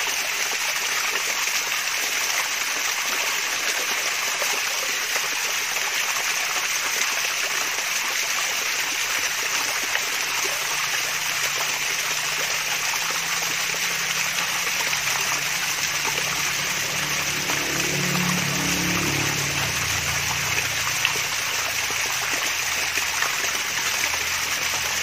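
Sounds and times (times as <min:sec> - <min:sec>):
water splashing down waterfall: 0:00.0 - 0:25.0.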